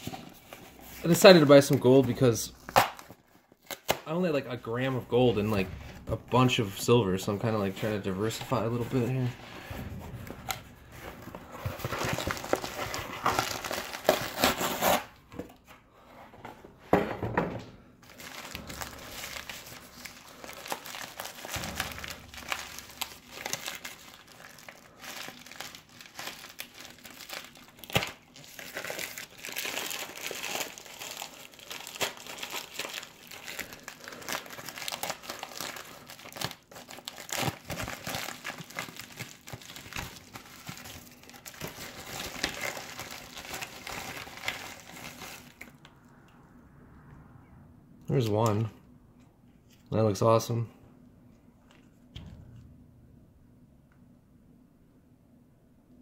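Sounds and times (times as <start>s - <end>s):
packing material crinkling: 0.0s - 5.6s, 10.6s - 15.2s, 18.0s - 45.8s.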